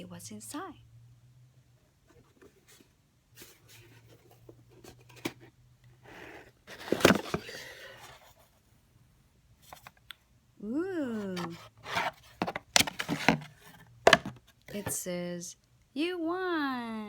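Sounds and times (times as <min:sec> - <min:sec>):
packaging rustling and scraping: 0:02.1 - 0:08.6, 0:11.2 - 0:14.9.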